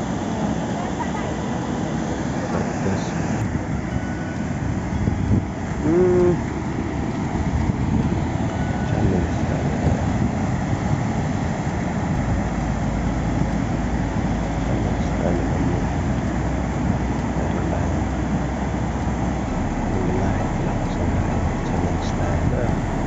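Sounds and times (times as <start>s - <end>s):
vehicle rumbling on road: 0.0s - 23.0s
short loud pitched sound: 19.4s - 23.0s.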